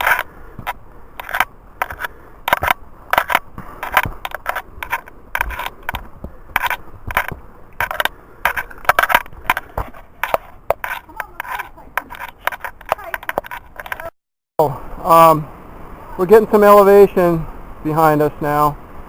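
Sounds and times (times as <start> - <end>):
footsteps on a forest trail: 0.0 - 14.1.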